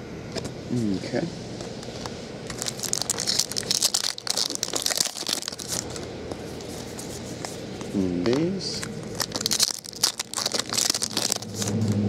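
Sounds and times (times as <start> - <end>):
wrapper tearing and crinkling: 2.5 - 6.0, 8.8 - 11.9.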